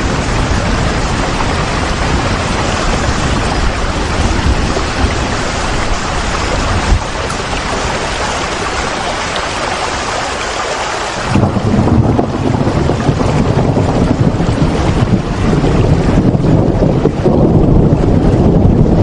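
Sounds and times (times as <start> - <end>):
deep rumble: 0.0 - 9.2, 11.2 - 19.0
rain hissing: 0.0 - 16.3.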